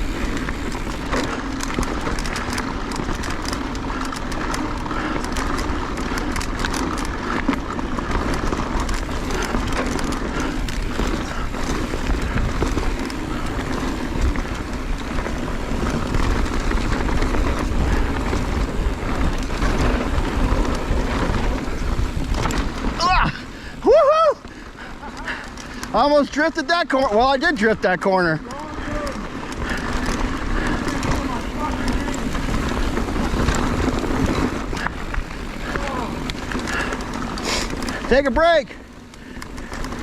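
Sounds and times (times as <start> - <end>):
wind rushing over microphone: 0.0 - 24.7
bike rattling: 0.0 - 40.0
bike tyres rolling over rock: 0.0 - 40.0.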